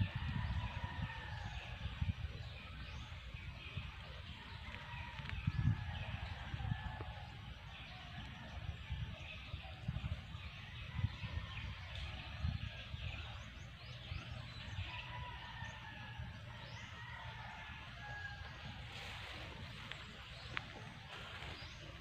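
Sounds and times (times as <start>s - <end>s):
footsteps through vegetation: 18.5s - 22.0s.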